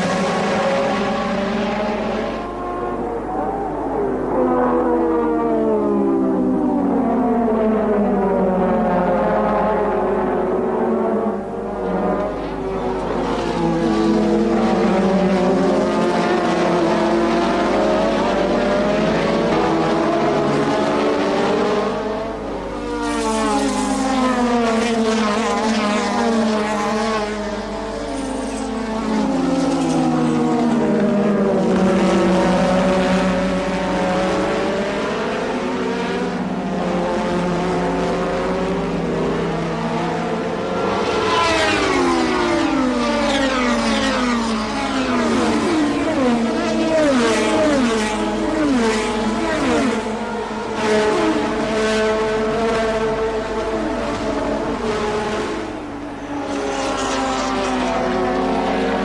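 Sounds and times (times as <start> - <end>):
racing car engines at high revs: 0.0 - 59.0.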